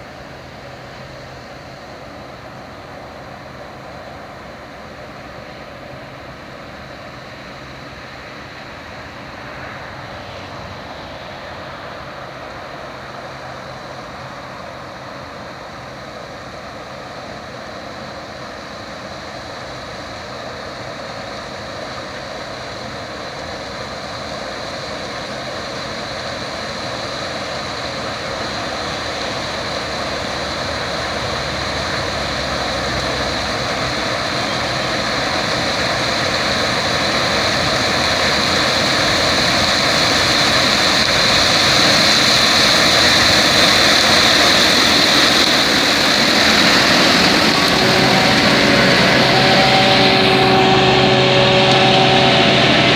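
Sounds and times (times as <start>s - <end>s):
combine harvester machine noise: 0.0s - 52.9s
high whine: 27.8s - 52.9s.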